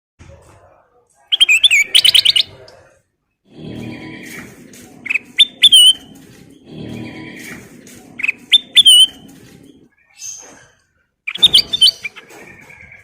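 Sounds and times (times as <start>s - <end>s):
bird chirping and whistling: 1.4s - 2.5s, 5.0s - 9.3s, 11.3s - 13.0s.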